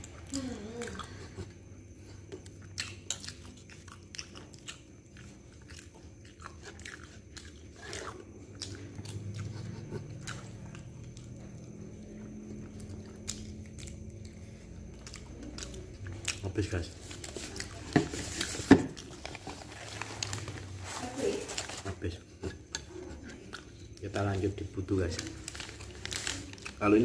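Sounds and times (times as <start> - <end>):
person chewing: 0.0 - 20.7
low steady hum: 0.0 - 27.0.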